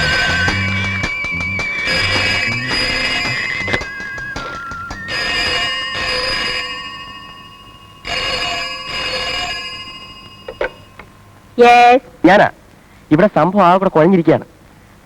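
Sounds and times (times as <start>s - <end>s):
telephone bell ringing: 0.0s - 11.4s.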